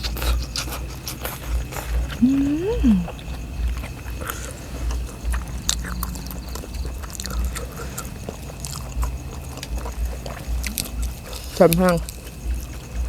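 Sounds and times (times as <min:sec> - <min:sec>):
chewing and eating: 0:00.0 - 0:13.0
soft low thumps: 0:04.9 - 0:13.0.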